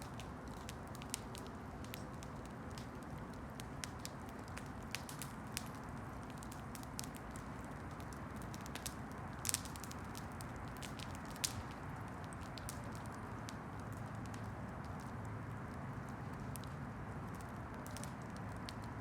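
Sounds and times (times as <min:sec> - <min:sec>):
low rush of flames: 0:00.0 - 0:19.0
wood crackling and popping: 0:00.0 - 0:19.0.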